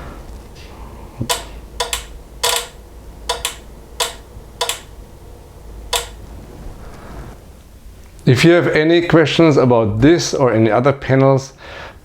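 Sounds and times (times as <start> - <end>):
turn signal flasher clicking: 1.3 - 5.0, 5.7 - 6.3.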